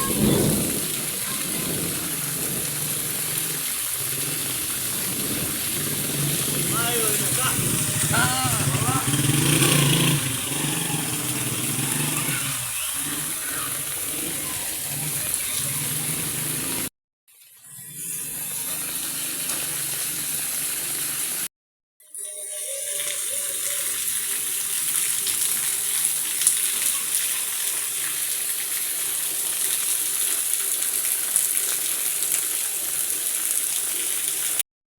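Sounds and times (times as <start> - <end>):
heavy rain hissing: 0.0 - 16.9, 18.2 - 21.5.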